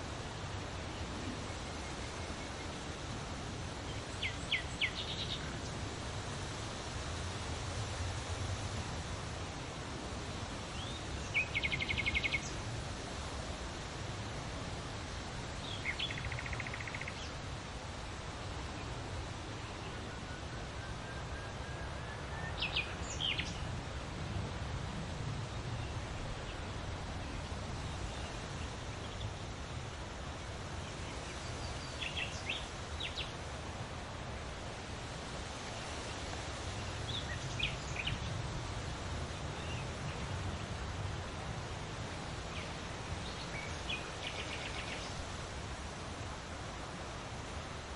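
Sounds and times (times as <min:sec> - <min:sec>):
songbird trills and chirps: 0:03.9 - 0:05.7, 0:10.7 - 0:12.6, 0:15.6 - 0:17.4, 0:19.8 - 0:23.7, 0:30.8 - 0:33.4, 0:36.8 - 0:38.4, 0:42.5 - 0:45.2.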